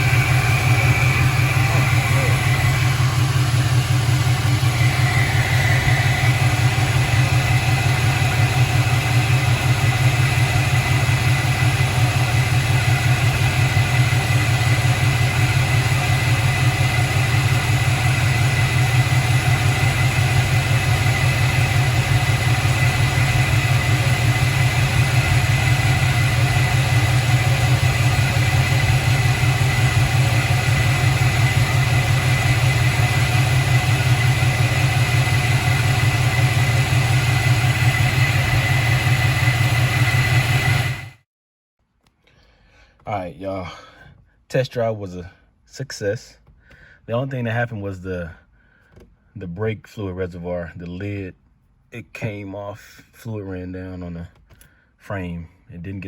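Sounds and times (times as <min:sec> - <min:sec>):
car engine idling rumble: 0:00.0 - 0:41.1.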